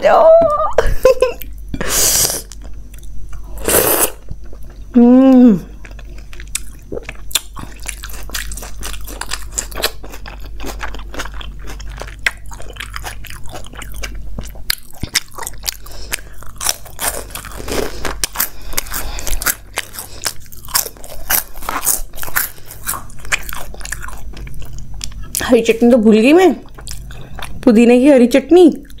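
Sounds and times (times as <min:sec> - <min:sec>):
crunchy snack chewing: 0:05.7 - 0:25.4, 0:26.6 - 0:27.6.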